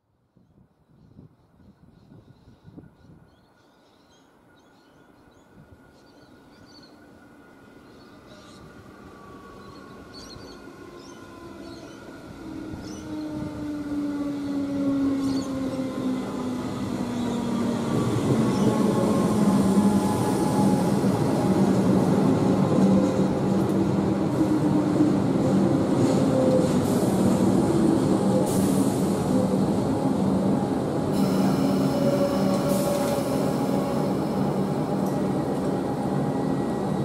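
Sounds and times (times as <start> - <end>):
electric train whine slowing: 7.8 - 37.0.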